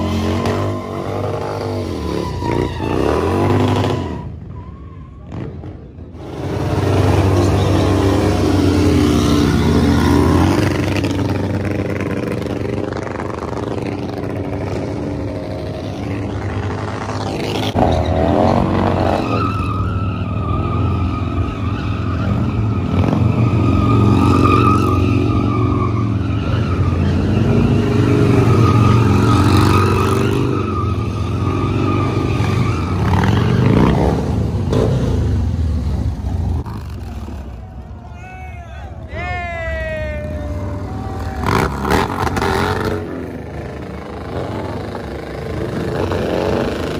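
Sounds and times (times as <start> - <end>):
tyre squeal: 0.0 - 5.7, 6.4 - 11.1, 17.2 - 34.8
motorcycle engine revving: 5.3 - 37.5, 40.5 - 46.9.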